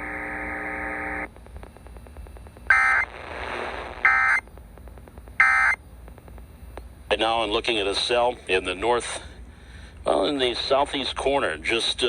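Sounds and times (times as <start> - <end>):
harsh buzzing data bursts: 0.0 - 4.4.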